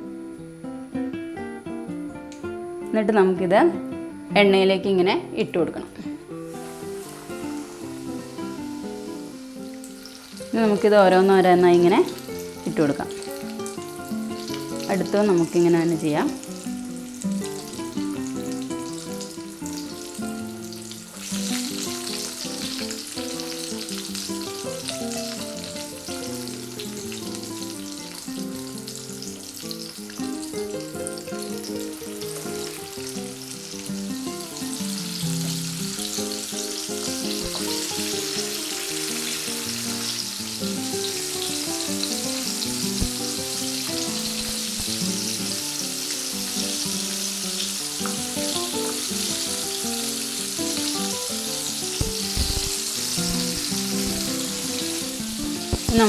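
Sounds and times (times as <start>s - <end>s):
quiet background music: 0.0s - 34.8s, 54.1s - 56.0s
chicken deep-frying in oil: 6.5s - 56.0s.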